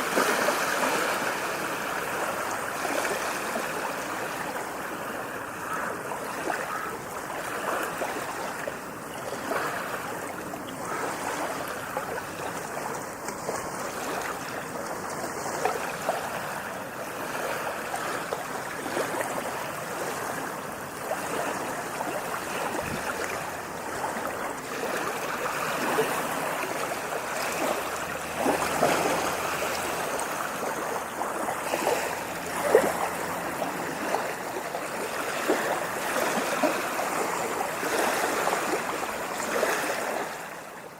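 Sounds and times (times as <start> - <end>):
water rushing and splashing: 0.0 - 40.9.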